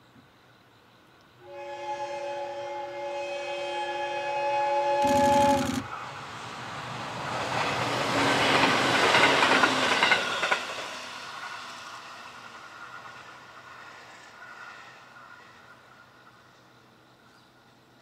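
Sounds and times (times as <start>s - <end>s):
train wheel and rail noise: 1.0s - 18.0s
clicks over rail joints: 5.0s - 5.9s.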